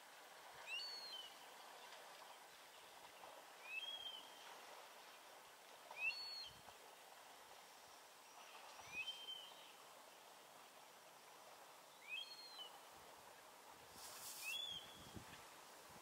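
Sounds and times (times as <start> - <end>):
faint background hiss: 0.0 - 16.0
bird whistled call: 0.7 - 1.3, 12.0 - 12.7, 14.4 - 15.1.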